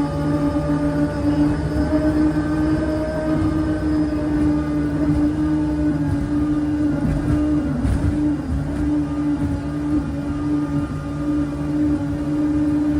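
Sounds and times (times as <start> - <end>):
jet boat engine drone: 0.0 - 12.9.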